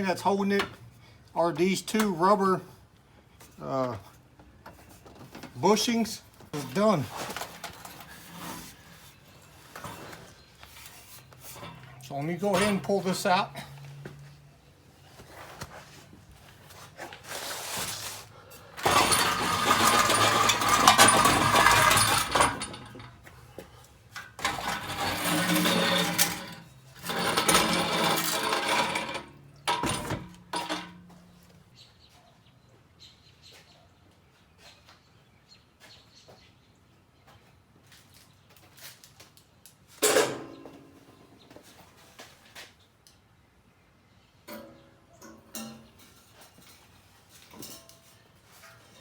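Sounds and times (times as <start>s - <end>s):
metal exhaust pipes clanking: 11.4s - 14.0s, 18.6s - 23.5s, 24.1s - 31.2s.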